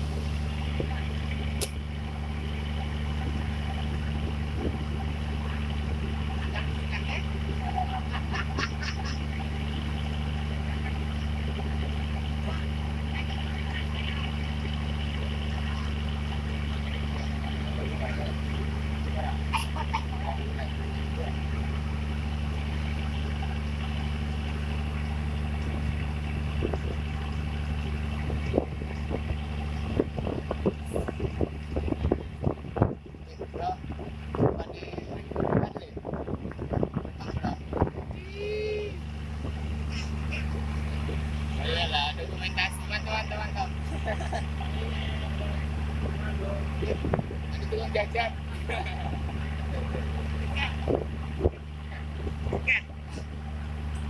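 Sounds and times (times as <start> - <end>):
boat engine running: 0.0 - 54.0
sharp click: 1.6 - 1.8.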